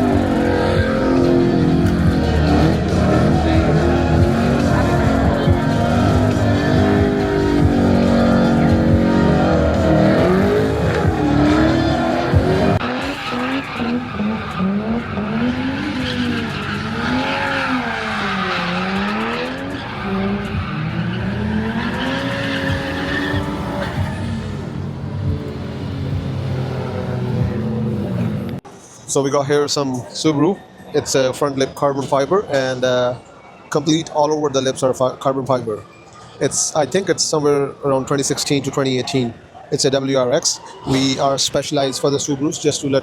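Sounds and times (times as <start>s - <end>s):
car engine revving: 0.0s - 28.6s
tyres skidding: 0.0s - 28.6s.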